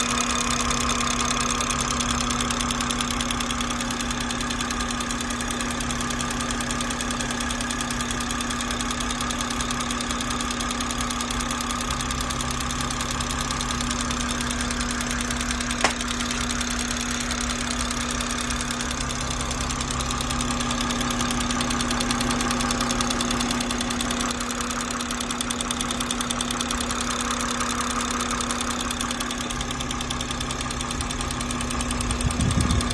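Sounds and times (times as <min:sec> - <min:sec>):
car engine idling with ticking: 0:00.0 - 0:32.9
sharp click: 0:15.7 - 0:16.5.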